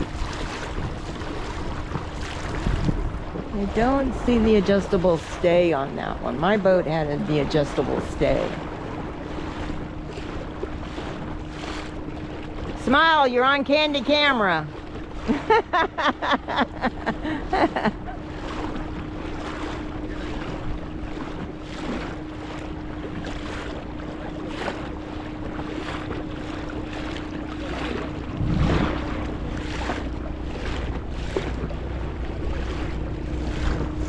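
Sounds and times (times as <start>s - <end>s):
outboard motor running: 0.0s - 34.0s
water rushing past hull: 0.0s - 34.0s
wind buffeting microphone: 0.0s - 34.0s.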